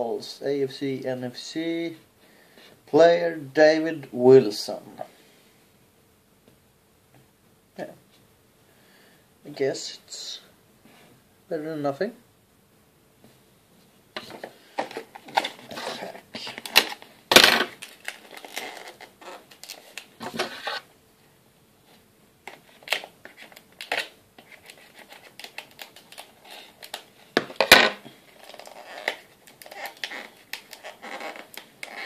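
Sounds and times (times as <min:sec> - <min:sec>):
card pack wrapper crackling: 0:14.8 - 0:20.8, 0:22.5 - 0:27.2, 0:28.3 - 0:32.0.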